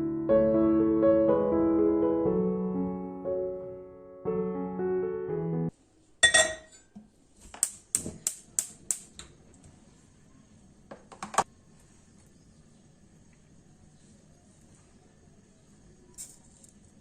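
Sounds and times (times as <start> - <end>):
ringing clink: 6.2 - 6.9.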